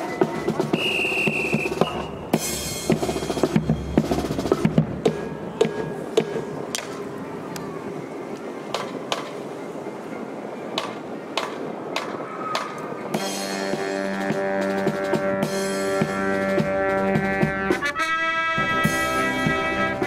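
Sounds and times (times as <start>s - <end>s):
marching band drums beating: 0.0s - 6.6s, 10.8s - 18.0s
marching band playing: 0.0s - 7.0s, 13.1s - 20.0s.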